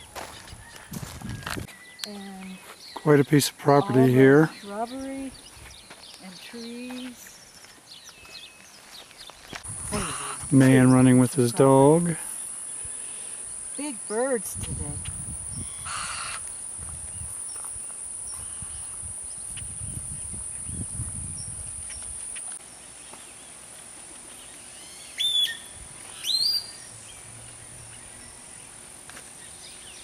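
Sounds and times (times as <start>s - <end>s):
loud bird calls: 6.3s - 11.0s, 15.0s - 20.8s, 24.3s - 28.8s
high insect buzz: 9.7s - 22.6s.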